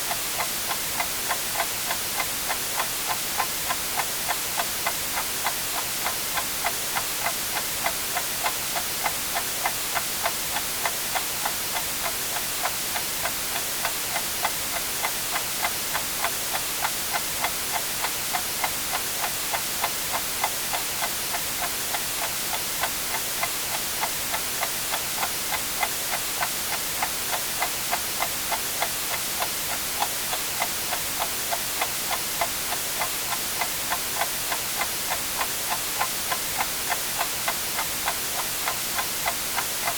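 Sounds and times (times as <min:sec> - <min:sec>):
white noise hiss: 0:00.0 - 0:39.9
clock ticking: 0:18.3 - 0:39.9.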